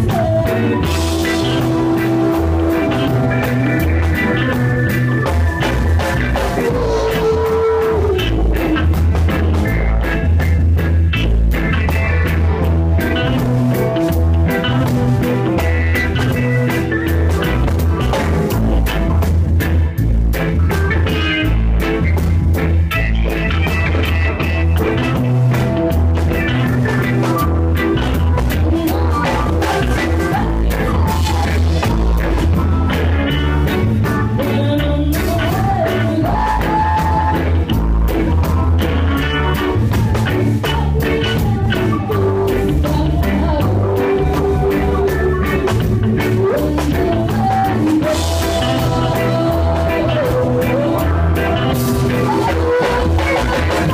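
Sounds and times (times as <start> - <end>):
lead singer singing: 0.0 - 9.7, 26.6 - 53.9
live band playing: 0.0 - 53.9.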